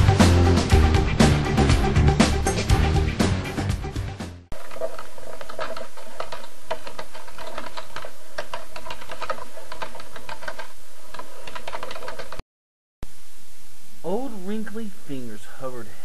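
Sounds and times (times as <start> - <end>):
fast typing on keyboard: 4.8 - 12.4.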